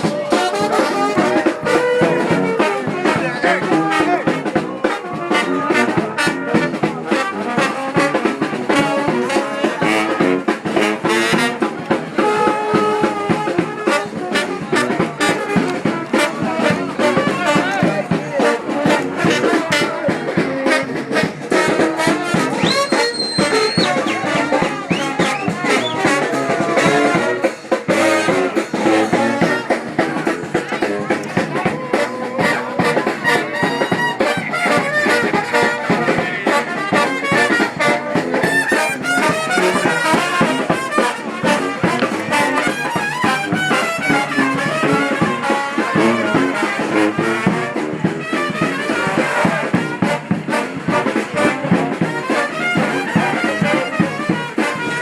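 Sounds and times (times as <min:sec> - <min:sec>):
brass band playing: 0:00.0 - 0:55.0
high whistle tone: 0:22.6 - 0:24.3, 0:24.9 - 0:26.2.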